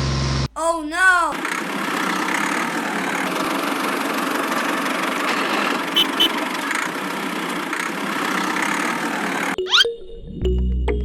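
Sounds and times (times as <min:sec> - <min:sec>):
engine idling: 0:01.5 - 0:09.5.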